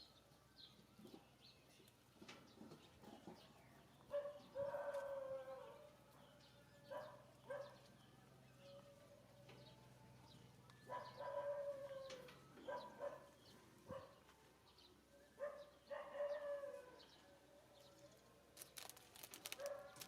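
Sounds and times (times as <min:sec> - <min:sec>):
animal calls: 0:10.8 - 0:14.2
crackle of clicks: 0:18.6 - 0:20.0.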